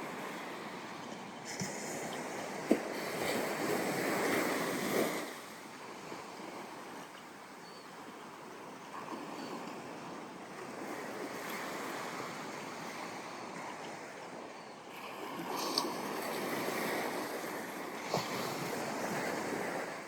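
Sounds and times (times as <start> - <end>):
waves breaking on a sandy beach: 0.0 - 20.0.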